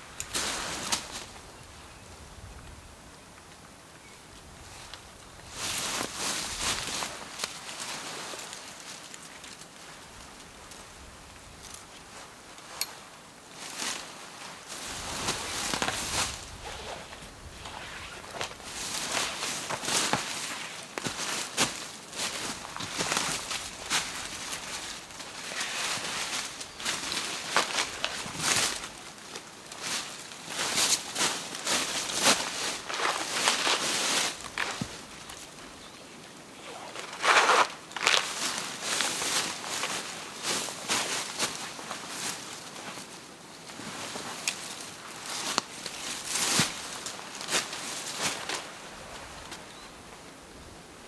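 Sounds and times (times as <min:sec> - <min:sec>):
rustling and crunching dry leaves: 0:00.0 - 0:01.5, 0:04.9 - 0:12.8, 0:13.5 - 0:49.8
twigs snapping: 0:32.8 - 0:35.4, 0:36.6 - 0:38.6.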